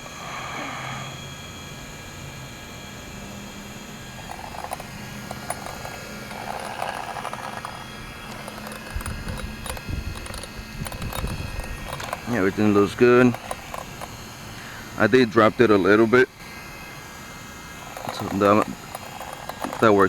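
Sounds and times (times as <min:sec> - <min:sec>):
two-stroke model engine running: 0:03.1 - 0:20.0
clicks: 0:04.3 - 0:14.8, 0:17.9 - 0:20.0.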